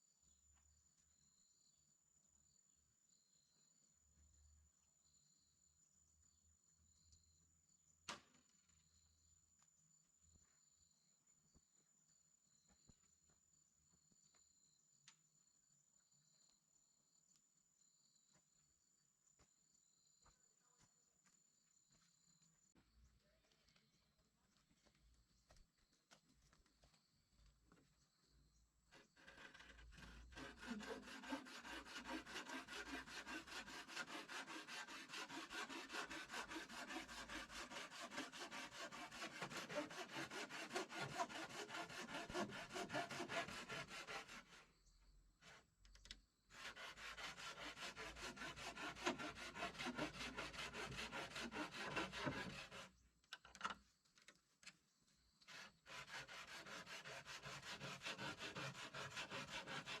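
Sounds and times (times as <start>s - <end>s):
hand tool scraping wood: 28.9s - 44.8s, 46.5s - 53.0s, 55.4s - 60.0s.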